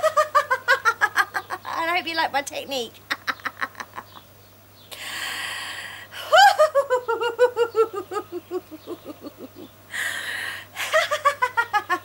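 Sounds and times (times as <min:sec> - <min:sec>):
woman laughing: 0:00.0 - 0:01.8, 0:03.1 - 0:04.2, 0:06.2 - 0:09.8, 0:10.8 - 0:12.0
sharp in-breath: 0:04.9 - 0:06.2, 0:09.9 - 0:10.7.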